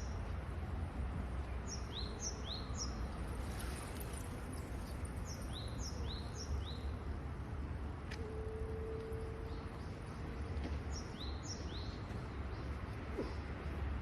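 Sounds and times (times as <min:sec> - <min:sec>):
songbird chirping: 0:01.4 - 0:03.2, 0:04.8 - 0:07.1, 0:08.1 - 0:13.0.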